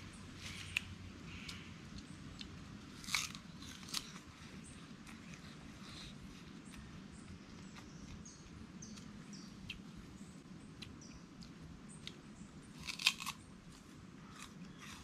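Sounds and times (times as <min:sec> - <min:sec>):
sugar cane crunching when chewed: 0:00.4 - 0:04.3, 0:12.8 - 0:15.0.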